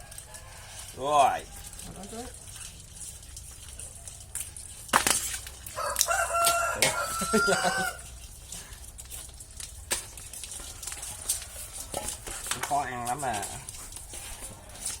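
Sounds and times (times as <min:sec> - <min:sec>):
rooster crowing: 0:00.0 - 0:01.8, 0:05.7 - 0:08.1.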